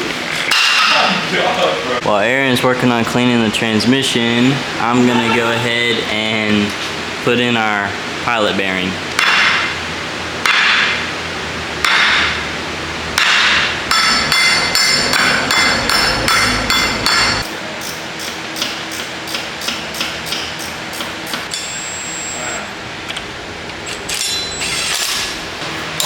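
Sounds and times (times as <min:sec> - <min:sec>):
hammer striking metal: 0:13.2 - 0:21.7.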